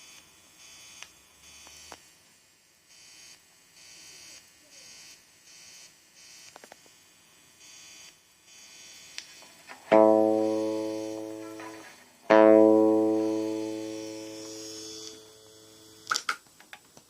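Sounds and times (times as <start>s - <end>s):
amp hissing buzz: 0.0s - 2.3s, 5.1s - 16.1s
electric guitar notes ringing: 9.7s - 15.9s.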